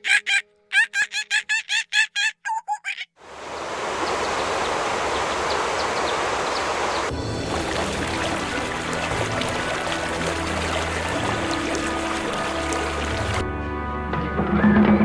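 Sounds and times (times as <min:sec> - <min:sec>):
bird clucking calls: 0:02.7 - 0:07.1
rushing water: 0:03.2 - 0:13.5
faint high bird chirps: 0:03.4 - 0:07.1.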